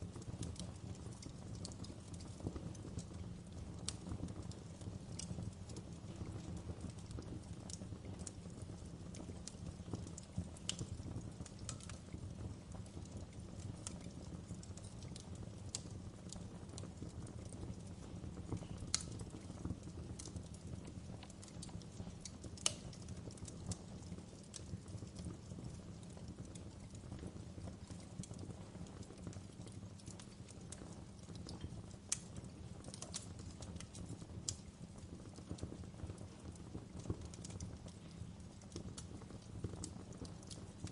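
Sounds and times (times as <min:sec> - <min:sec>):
fireplace crackling: 0:00.0 - 0:40.9
low rumble of fire: 0:00.0 - 0:40.9.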